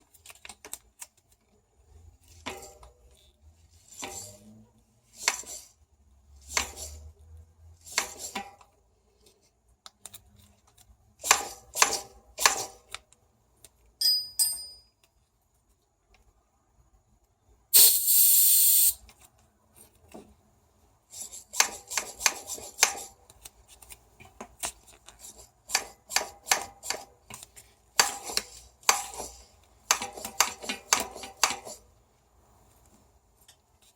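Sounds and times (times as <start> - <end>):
short loud hiss: 17.8 - 19.0.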